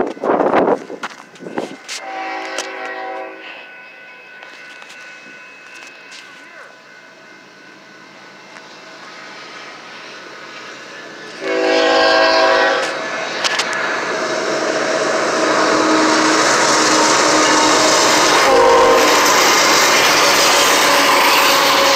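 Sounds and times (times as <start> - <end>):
train rumbling: 0.0 - 21.9
train horn chord: 1.8 - 6.3, 11.4 - 13.7, 14.6 - 21.9.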